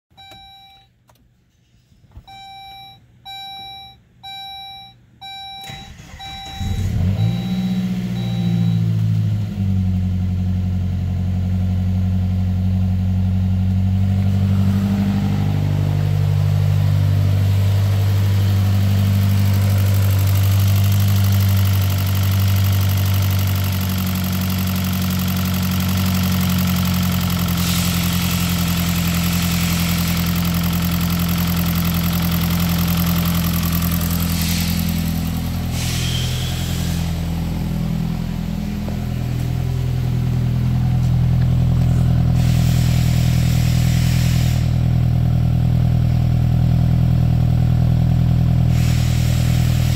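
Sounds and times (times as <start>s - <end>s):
car engine idling: 5.6s - 49.9s
brief bursts of hiss: 35.7s - 37.2s.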